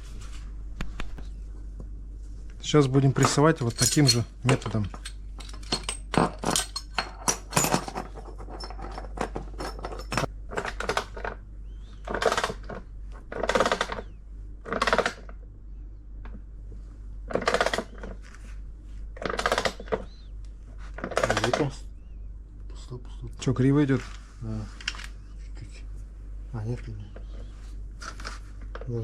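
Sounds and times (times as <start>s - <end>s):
metal washers and bolt clinking: 3.2s - 10.3s.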